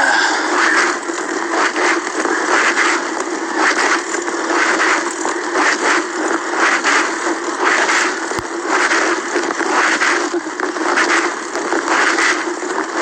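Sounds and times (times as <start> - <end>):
bicycle tyre and wind noise: 0.0 - 13.0
bicycle rattling: 0.1 - 8.8.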